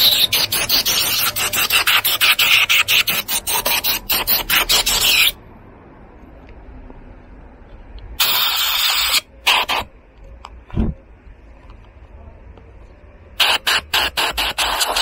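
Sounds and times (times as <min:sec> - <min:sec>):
spray hissing: 0:08.2 - 0:09.9, 0:13.4 - 0:15.0.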